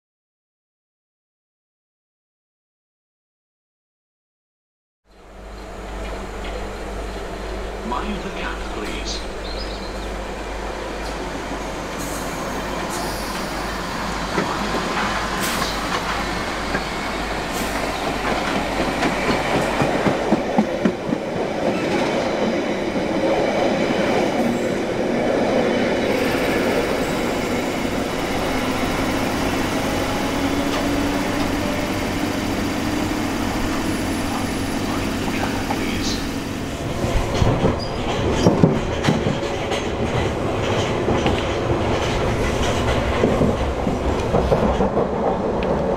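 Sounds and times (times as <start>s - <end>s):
train rumble: 5.2s - 45.9s
train wheels clattering over joints: 14.3s - 22.2s, 37.0s - 45.9s.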